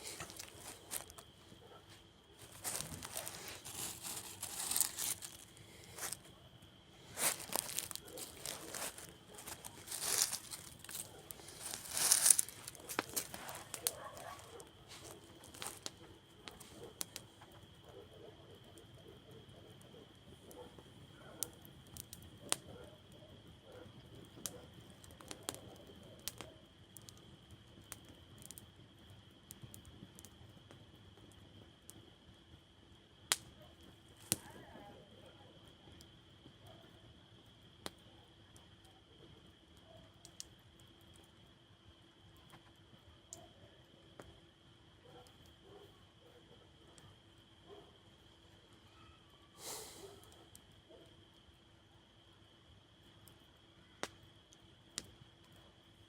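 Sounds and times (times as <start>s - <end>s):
campfire crackling and popping: 0.0s - 1.4s, 2.3s - 17.8s, 18.6s - 22.8s, 23.4s - 32.3s, 33.1s - 34.6s, 37.3s - 41.4s, 54.0s - 55.6s.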